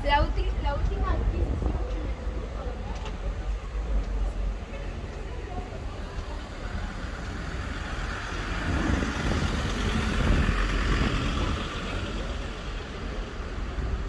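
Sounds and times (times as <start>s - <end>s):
vehicle passing: 6.0s - 14.0s.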